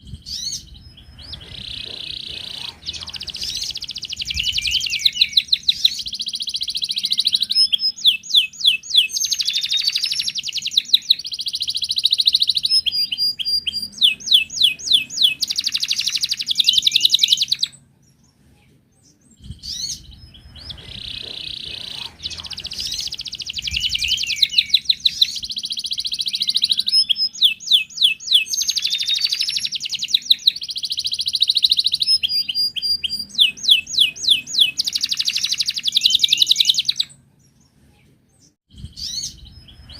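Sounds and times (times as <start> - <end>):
canary trilling song: 0.0 - 18.4, 19.0 - 37.8, 38.4 - 39.9.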